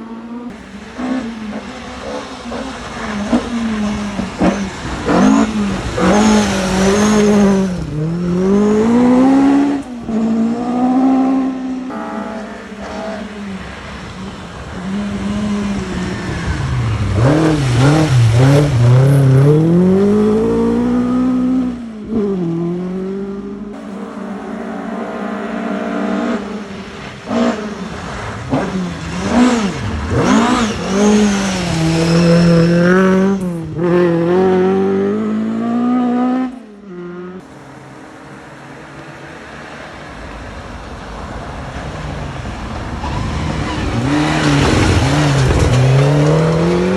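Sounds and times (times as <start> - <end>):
rally car engines revving: 0.0 - 46.9.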